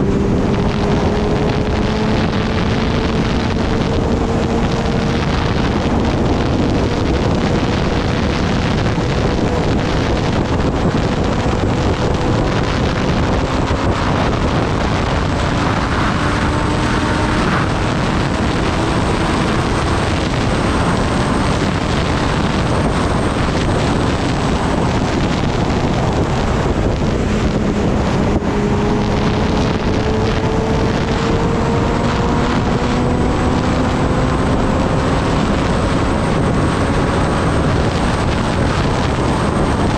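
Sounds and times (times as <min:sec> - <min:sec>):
motorcycle engine note climbing: 0:00.0 - 0:39.9
wind rush over microphone: 0:00.0 - 0:39.9.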